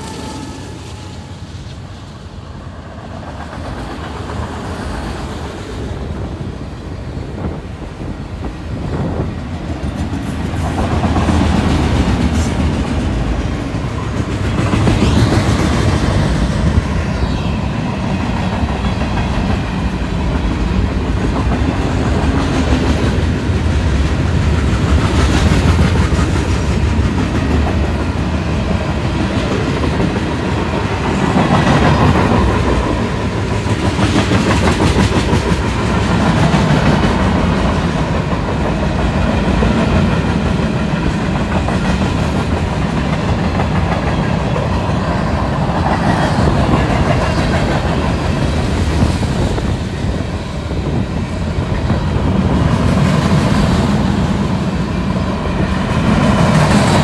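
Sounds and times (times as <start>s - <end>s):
freight train wheels rumbling: 0.0s - 57.0s
clickety-clack over rail joints: 2.8s - 6.5s, 7.2s - 16.6s, 18.8s - 57.0s.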